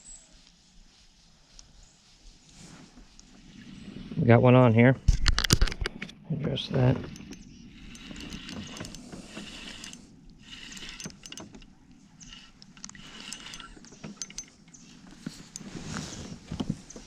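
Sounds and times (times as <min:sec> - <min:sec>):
tackle clicking against boat: 0:06.7 - 0:15.7
fishing reel cranking: 0:06.8 - 0:15.6.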